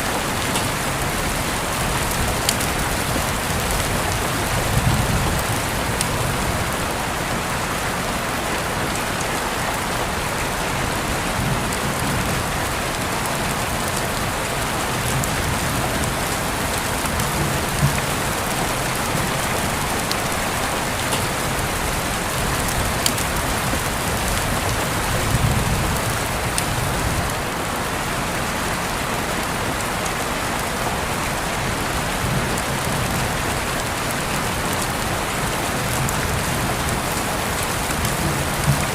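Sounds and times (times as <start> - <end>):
steady rain falling: 0.0 - 38.9
sharp raindrop ticks: 0.4 - 6.8, 11.7 - 27.4, 32.6 - 38.9.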